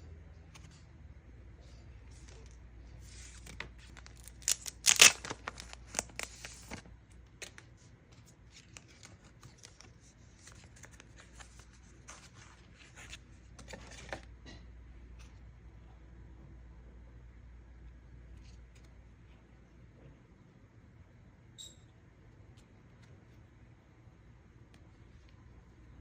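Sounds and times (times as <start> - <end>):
packaging tearing and crinkling: 3.8 - 6.8.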